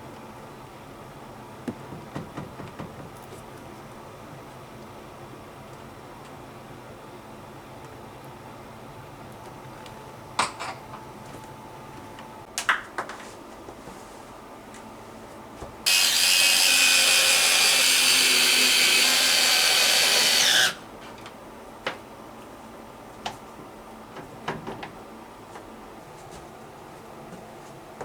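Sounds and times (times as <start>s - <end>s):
electric screwdriver running: 15.9s - 20.8s.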